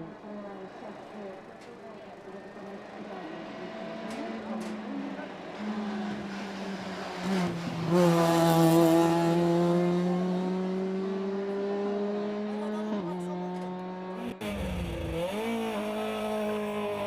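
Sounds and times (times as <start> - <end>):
race car engine accelerating: 2.4 - 17.0.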